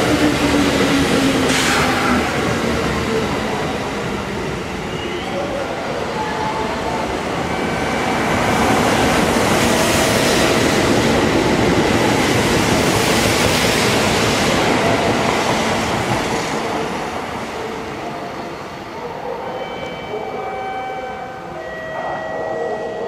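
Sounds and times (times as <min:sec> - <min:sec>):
train wheels rumbling and clattering: 0:00.0 - 0:04.8, 0:06.8 - 0:17.5.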